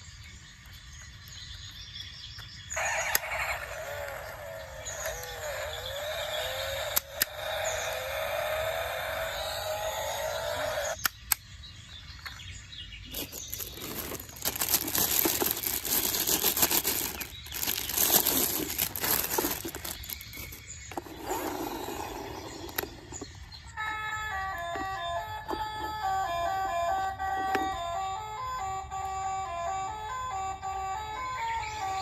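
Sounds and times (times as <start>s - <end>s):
plastic toy vehicles clattering: 13.1s - 23.4s.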